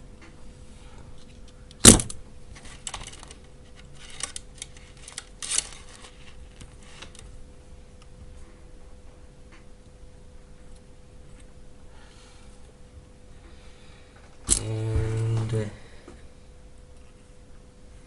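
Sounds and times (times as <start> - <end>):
faint steady hum: 0.0 - 18.0
clicks and rattles of handling cells: 1.2 - 7.3.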